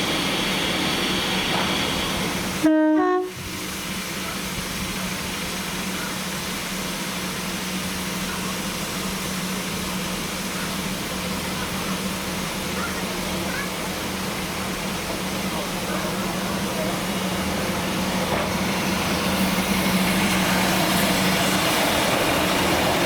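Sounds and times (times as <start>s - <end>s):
steam locomotive whistle toot: 2.5s - 3.5s.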